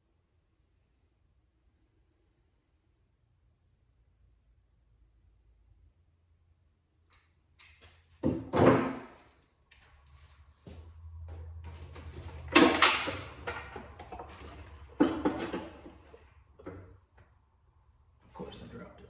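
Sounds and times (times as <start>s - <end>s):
car parts and tools knocking: 11.4s - 17.0s.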